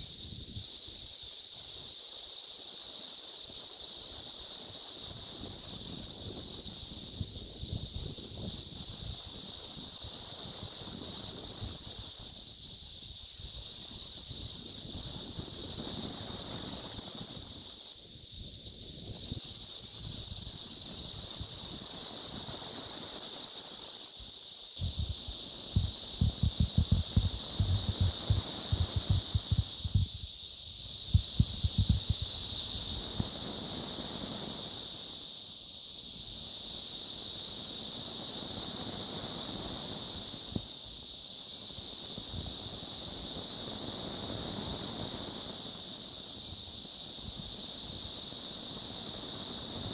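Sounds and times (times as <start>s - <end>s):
cicadas droning: 0.0s - 49.9s
wind rumble on microphone: 24.8s - 32.5s.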